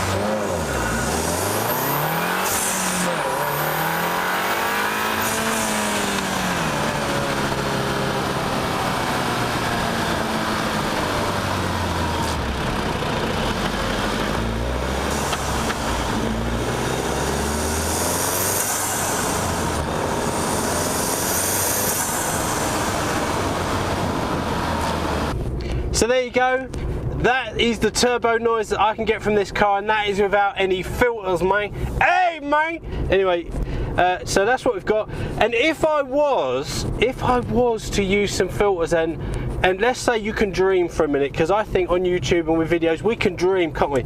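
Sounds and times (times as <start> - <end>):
car engine accelerating: 0.0 - 25.8.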